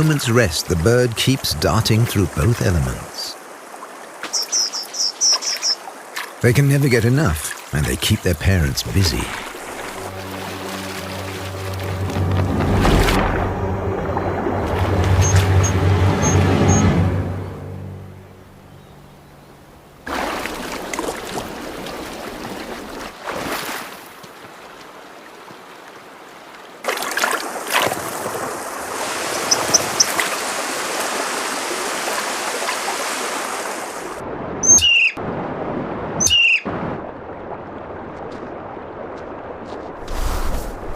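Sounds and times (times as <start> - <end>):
rushing stream water: 0.0 - 18.2, 19.8 - 40.9
bird chirping and calling: 4.2 - 5.8, 29.4 - 30.2, 34.6 - 35.2, 36.2 - 36.6.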